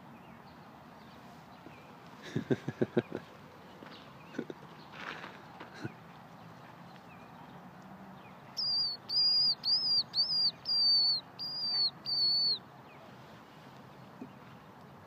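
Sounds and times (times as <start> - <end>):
bird whistling clear notes: 8.6 - 12.6.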